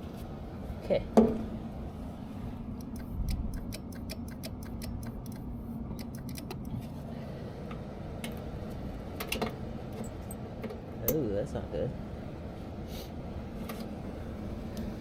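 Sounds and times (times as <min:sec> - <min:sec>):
steady low hum: 0:00.0 - 0:15.0
light irregular clicks: 0:02.8 - 0:06.8.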